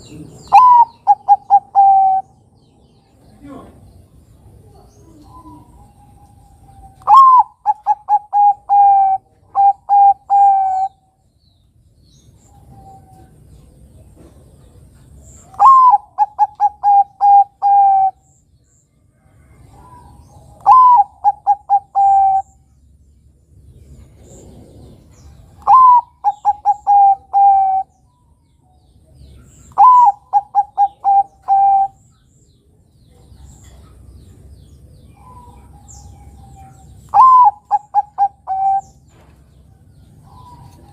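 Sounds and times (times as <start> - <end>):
dove cooing: 0.0 - 2.4, 4.5 - 11.0, 15.4 - 18.2, 19.5 - 22.6, 24.1 - 28.0, 29.4 - 32.0, 35.2 - 39.0.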